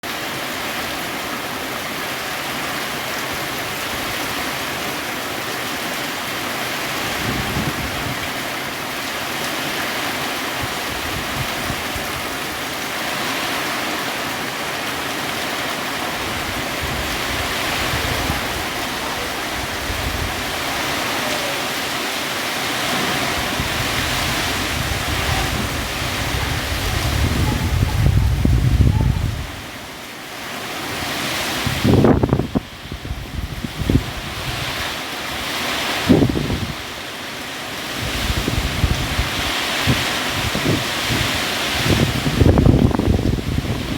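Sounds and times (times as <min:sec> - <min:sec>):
heavy rain hissing: 0:00.0 - 0:43.9
wind buffeting microphone: 0:07.0 - 0:08.3, 0:10.6 - 0:12.4, 0:16.1 - 0:21.3, 0:22.7 - 0:29.8, 0:31.0 - 0:36.9, 0:37.9 - 0:43.9.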